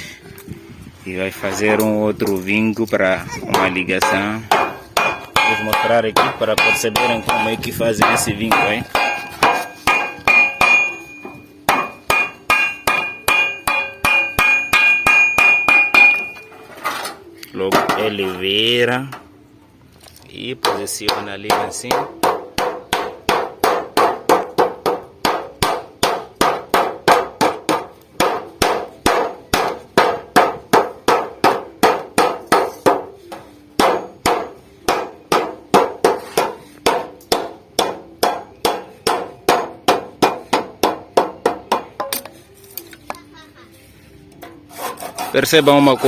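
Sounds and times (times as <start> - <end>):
hammer on thin sheet metal: 3.5 - 16.5, 20.6 - 42.3.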